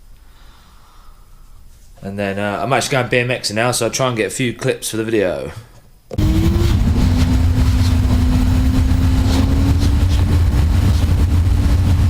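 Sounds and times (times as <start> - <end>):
vehicle engine rumble: 6.2 - 12.0.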